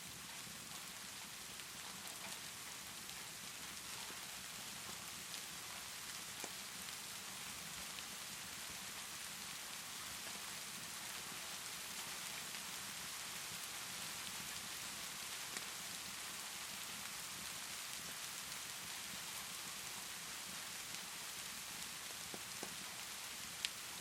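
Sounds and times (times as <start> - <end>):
steady rainfall: 0.0 - 24.0.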